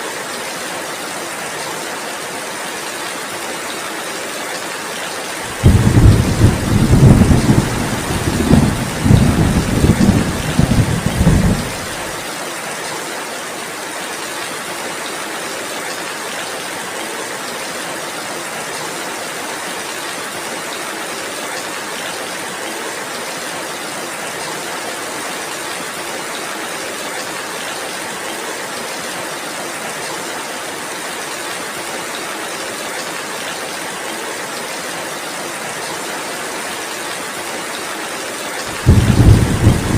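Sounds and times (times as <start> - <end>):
heavy rain: 0.0 - 39.9
thunder rumbling: 5.5 - 12.1, 38.7 - 39.9.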